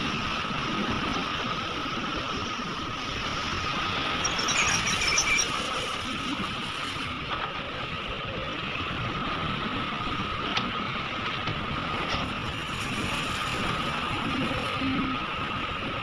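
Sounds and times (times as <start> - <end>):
high whine: 0.9 - 7.3.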